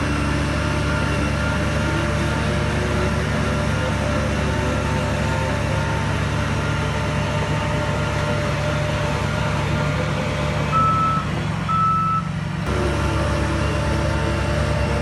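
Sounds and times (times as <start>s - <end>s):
diesel machinery engine running: 0.0s - 15.0s
reversing alarm beeps: 10.7s - 12.3s.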